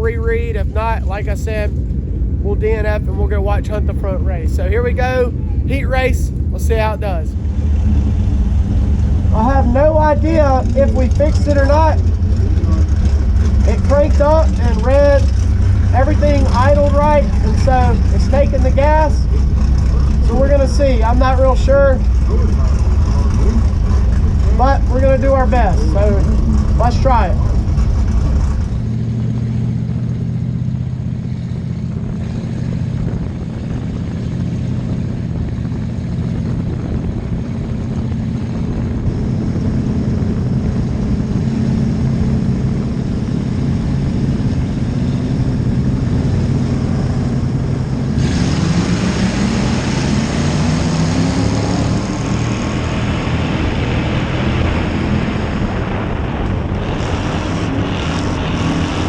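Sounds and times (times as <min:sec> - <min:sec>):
rushing noise: 0:00.0 - 0:29.1, 0:37.0 - 0:59.0
race car engine: 0:00.0 - 0:59.0.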